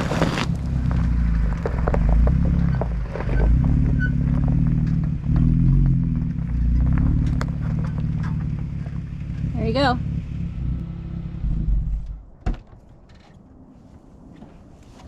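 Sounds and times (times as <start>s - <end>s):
short crackles: 0.0s - 2.1s
engine running at low speed: 0.0s - 12.4s.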